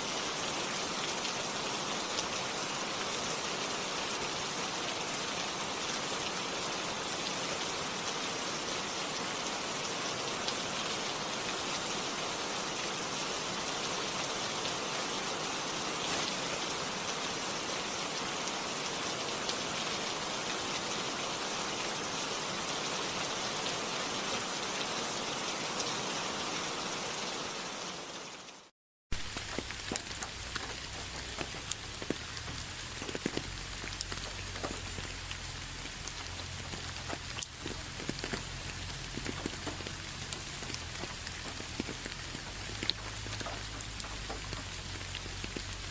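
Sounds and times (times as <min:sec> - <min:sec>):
steady rain: 0:00.0 - 0:45.9
raindrop ticks: 0:29.2 - 0:45.9.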